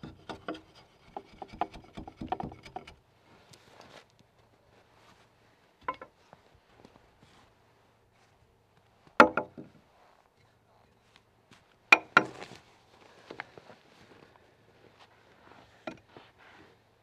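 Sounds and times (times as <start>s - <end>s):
axe striking timber: 0.0s - 2.9s, 9.2s - 9.7s, 12.0s - 12.4s.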